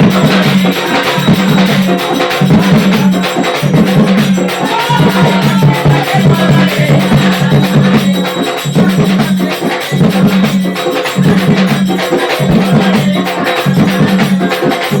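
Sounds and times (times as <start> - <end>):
jingling hand percussion: 0.0 - 15.0.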